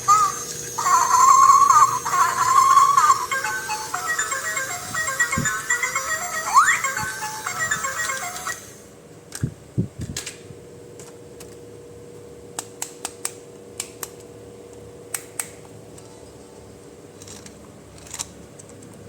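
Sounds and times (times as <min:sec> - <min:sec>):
faint steady hum: 0:00.0 - 0:12.6
music track: 0:00.8 - 0:08.8
plastic toy parts clicking: 0:17.2 - 0:19.0.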